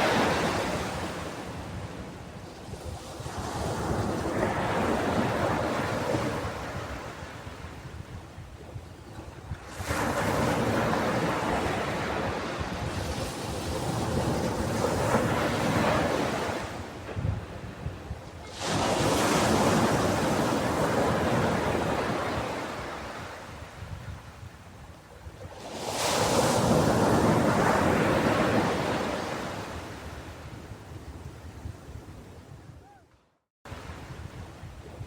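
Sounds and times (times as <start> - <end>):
sea waves breaking: 18.4 - 23.4.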